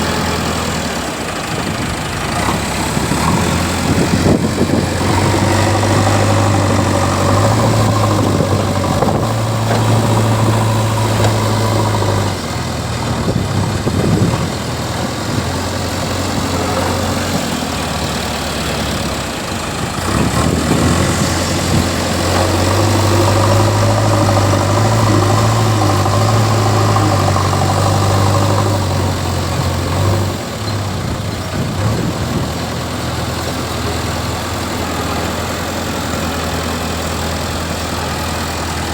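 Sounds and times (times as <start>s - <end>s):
backhoe diesel engine running: 0.0s - 38.9s.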